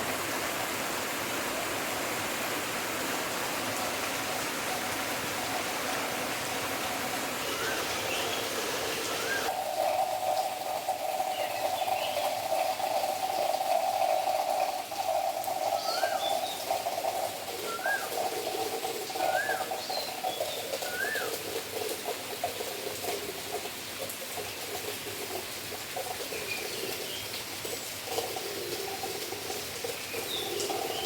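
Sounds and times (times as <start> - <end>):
birds whistling: 7.5 - 9.5, 15.8 - 16.4, 17.7 - 18.1, 19.2 - 21.3.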